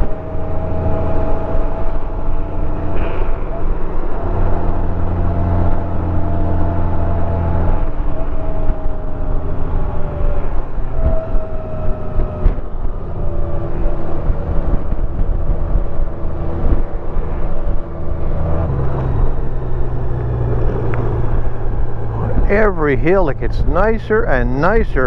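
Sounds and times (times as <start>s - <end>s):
wind and road noise: 0.0s - 25.0s
motorcycle engine running: 16.6s - 24.7s.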